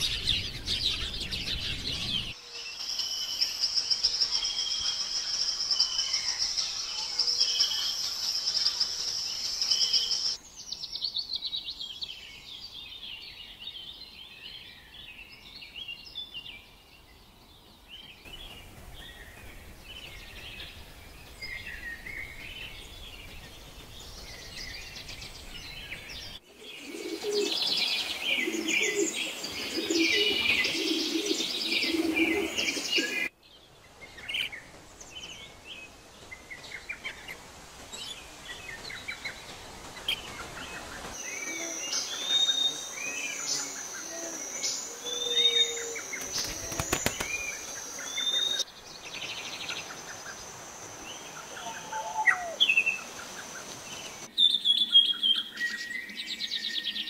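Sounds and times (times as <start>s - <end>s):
dense bird chorus: 0.0s - 57.0s
scattered bird chirps: 38.8s - 50.5s.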